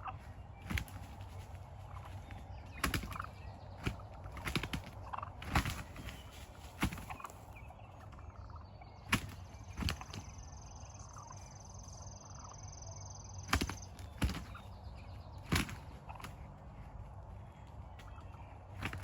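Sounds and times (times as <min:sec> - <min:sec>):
turkey gobbling: 0:00.0 - 0:19.0.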